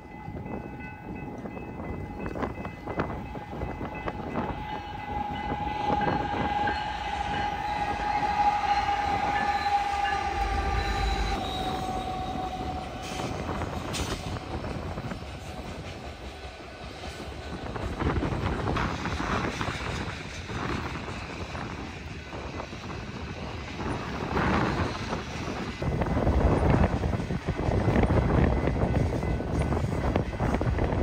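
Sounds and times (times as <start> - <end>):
freight train rolling past: 0.0 - 31.0
high steady tone sinking in pitch: 1.8 - 15.9.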